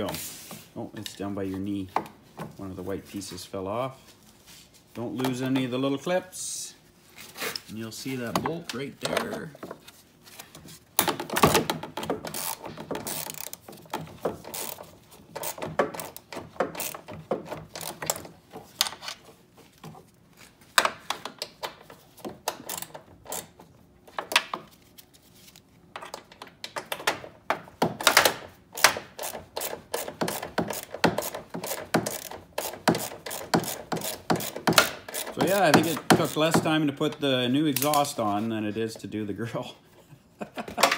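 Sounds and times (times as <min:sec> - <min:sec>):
knocks and clicks of tools: 0:11.0 - 0:19.2, 0:25.9 - 0:38.1
ratchet wrench clicking: 0:12.3 - 0:13.6, 0:28.8 - 0:36.4.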